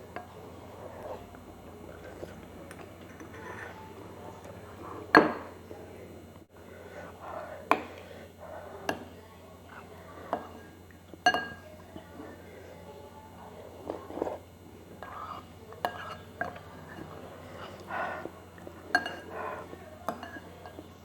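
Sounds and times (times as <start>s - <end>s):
spoon clinking against bowl: 11.2s - 11.7s, 18.9s - 19.3s, 20.1s - 20.8s.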